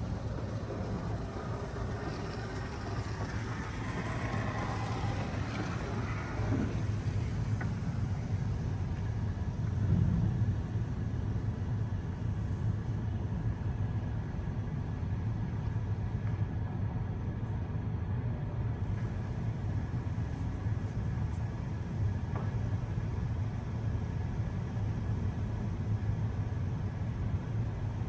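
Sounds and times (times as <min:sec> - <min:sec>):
car wash motors rumbling: 0:00.0 - 0:13.0, 0:18.8 - 0:27.8.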